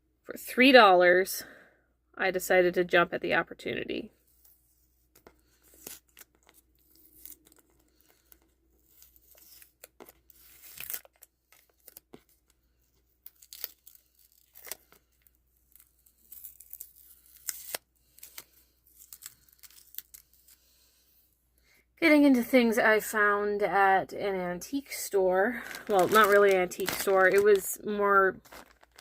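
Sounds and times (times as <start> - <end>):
packaging tearing and crinkling: 5.7 - 12.2, 13.3 - 20.5, 25.6 - 27.8, 28.4 - 29.0.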